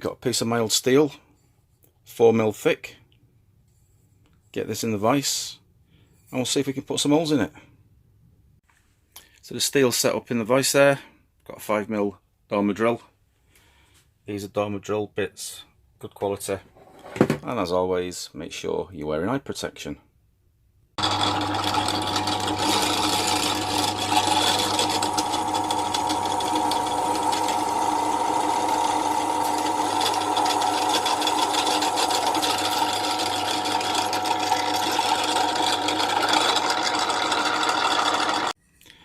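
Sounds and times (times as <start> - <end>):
pillar drill boring through steel: 21.0 - 38.6.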